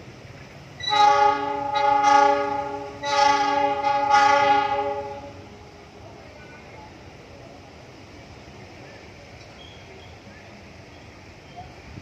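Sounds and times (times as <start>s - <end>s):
train horn blasts: 0.8s - 5.8s.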